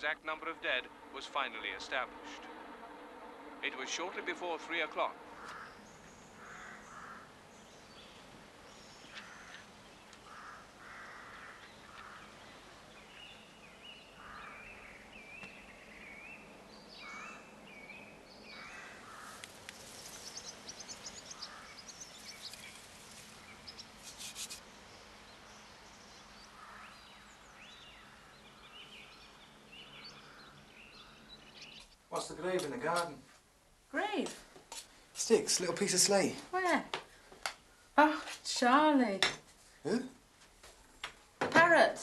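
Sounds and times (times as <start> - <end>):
small birds singing: 3.3 - 33.2
crows cawing: 5.2 - 7.6, 9.0 - 12.6, 14.0 - 15.1, 16.9 - 17.6, 18.4 - 19.9, 20.7 - 22.4, 26.4 - 31.6
low background hiss: 11.5 - 42.0.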